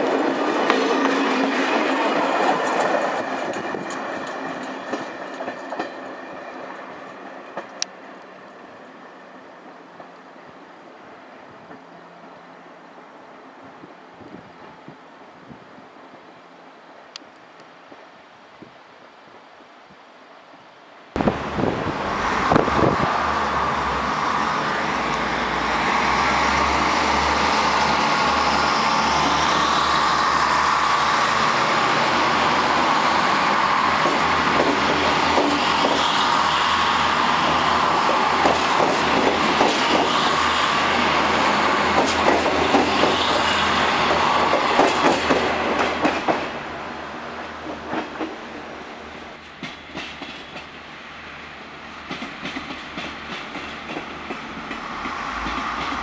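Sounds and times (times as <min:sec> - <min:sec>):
wheels clacking over rail joints: 0:00.0 - 0:08.3, 0:31.5 - 0:46.6, 0:49.4 - 0:50.8, 0:52.0 - 0:56.0
diesel railcar engine: 0:00.0 - 0:17.3, 0:21.2 - 0:56.0
rush of passing train: 0:00.0 - 0:56.0.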